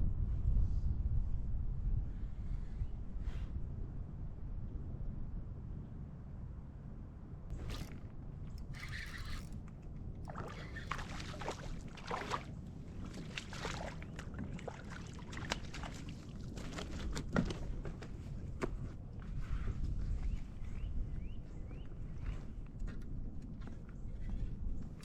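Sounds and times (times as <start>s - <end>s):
wind rumble on microphone: 0.0s - 25.0s
water sloshing around a kayak: 7.5s - 18.4s.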